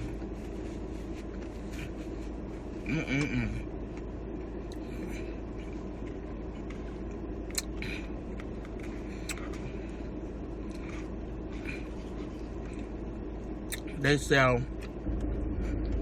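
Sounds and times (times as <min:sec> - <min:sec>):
steady low rumble: 0:00.0 - 0:16.0
chewing crunches and mouth noises: 0:03.8 - 0:14.0.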